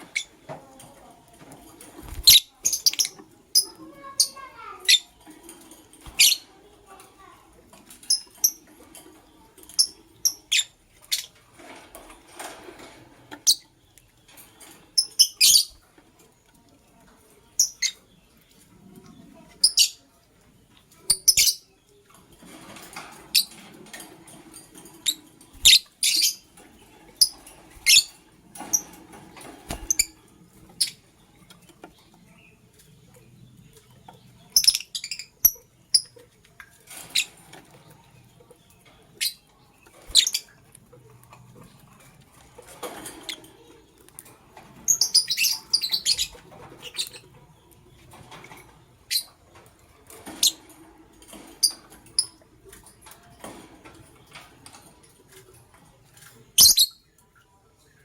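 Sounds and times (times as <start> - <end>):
lovebirds chirping: 0.0 - 0.5, 1.8 - 7.3, 23.0 - 36.3, 36.9 - 40.7.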